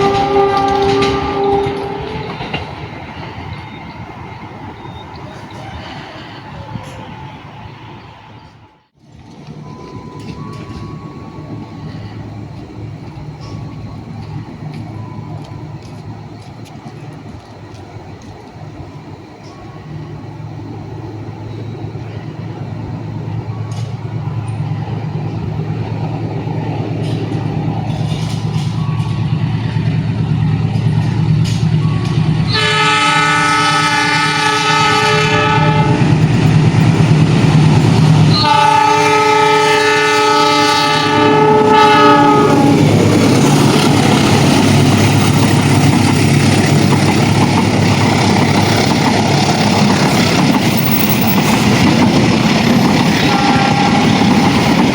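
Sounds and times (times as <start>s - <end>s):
locomotive horn blasts: 0.0s - 2.8s, 31.0s - 36.3s, 38.2s - 45.6s, 53.0s - 54.7s
diesel locomotive engine drone: 0.0s - 54.9s.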